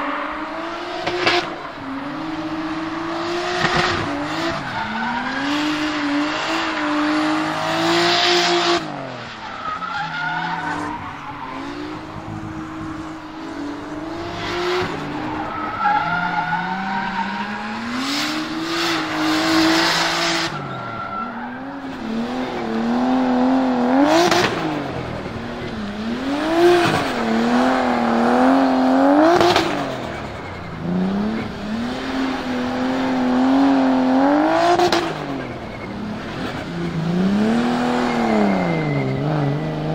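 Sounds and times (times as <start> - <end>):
car engine revving: 0.0 - 39.9
tyres squealing: 9.2 - 12.3, 37.6 - 39.9.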